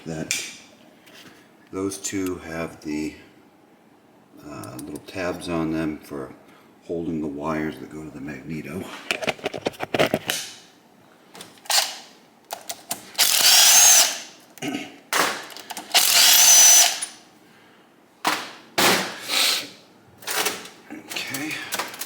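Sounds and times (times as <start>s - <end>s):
power drill whining: 13.2s - 14.3s, 15.9s - 17.2s.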